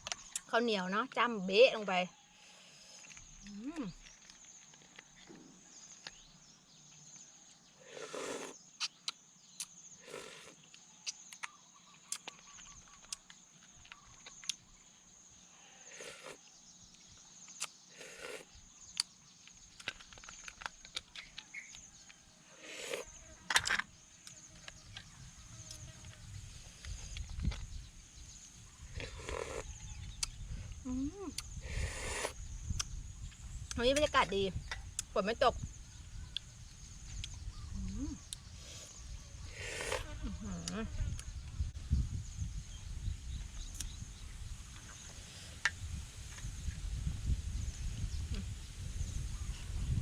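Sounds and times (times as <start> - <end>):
person chewing and lip smacking: 30.1 - 30.4.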